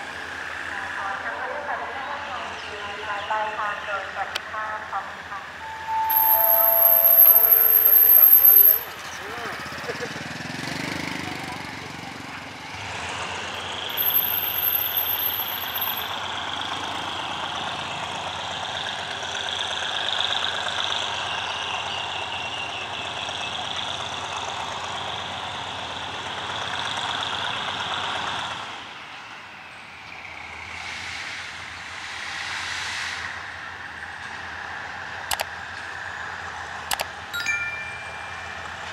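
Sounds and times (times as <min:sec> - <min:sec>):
high squeal of wheels: 0:05.6 - 0:09.0, 0:13.9 - 0:16.1
train wheels rolling on rails: 0:06.1 - 0:09.0, 0:13.8 - 0:16.2.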